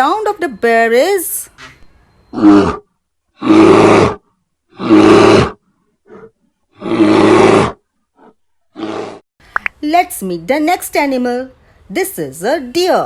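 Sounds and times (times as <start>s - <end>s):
bear roaring: 2.3s - 9.2s.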